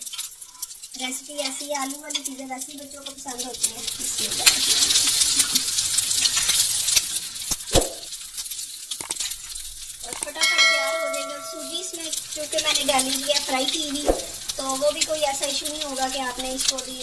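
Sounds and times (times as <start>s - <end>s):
hot oil sizzling: 0.0s - 17.0s
sharp knocks: 7.7s - 8.1s
short ringing chime: 10.4s - 12.1s.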